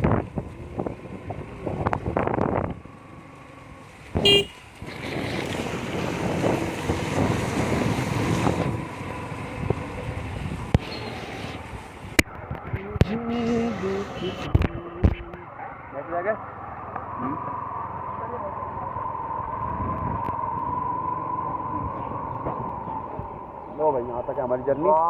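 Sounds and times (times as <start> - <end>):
wind on microphone: 0.0 - 3.1, 4.0 - 15.3, 19.0 - 23.9
passing road traffic: 0.0 - 25.0
vehicle horn toot: 4.2 - 4.6.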